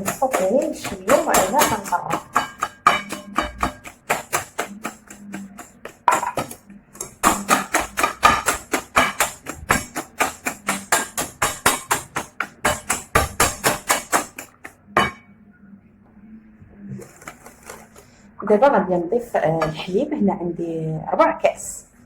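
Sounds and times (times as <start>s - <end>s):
whisk clacking against bowl: 0.0s - 15.2s, 17.0s - 18.1s.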